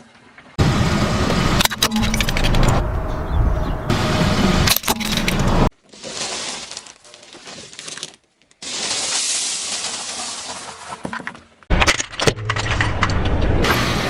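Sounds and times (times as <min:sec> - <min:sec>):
tyre crushing brittle objects: 0:04.7 - 0:13.4.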